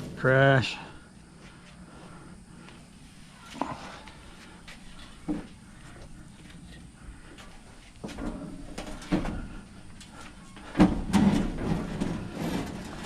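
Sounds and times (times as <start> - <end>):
scrap items knocking and scraping: 10.7 - 13.0.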